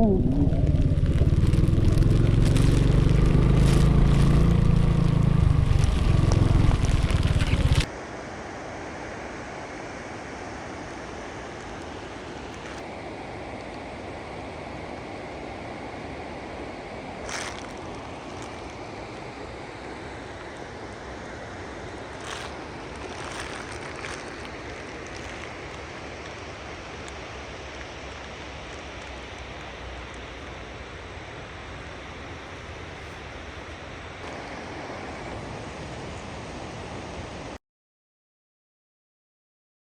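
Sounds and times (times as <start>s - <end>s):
heavy rain: 0.0s - 7.9s, 15.0s - 37.6s
wind on microphone: 0.0s - 7.9s
running water: 0.0s - 37.6s.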